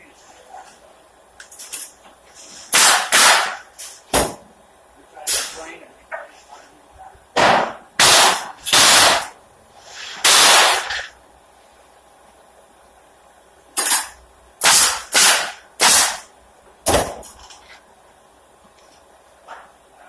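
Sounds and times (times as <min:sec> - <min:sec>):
pneumatic nail gun firing: 0:02.7 - 0:04.4, 0:07.4 - 0:09.4, 0:10.0 - 0:11.2, 0:13.8 - 0:16.3, 0:16.9 - 0:17.4.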